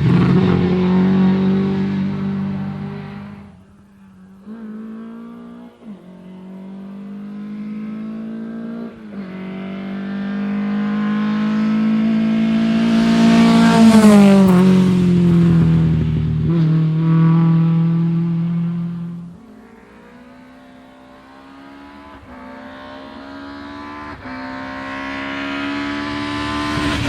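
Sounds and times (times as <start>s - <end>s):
rally car engine shifting gears: 0.0s - 27.0s.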